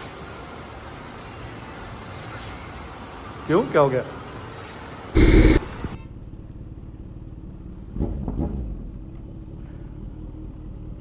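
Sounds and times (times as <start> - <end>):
abrupt burst of noise: 5.2 - 5.9
vehicle engine humming: 5.2 - 8.0.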